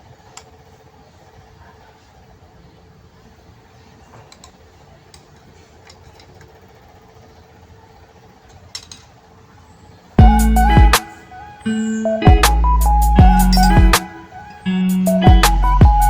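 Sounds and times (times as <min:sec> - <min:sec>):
loud music: 0:10.2 - 0:16.0.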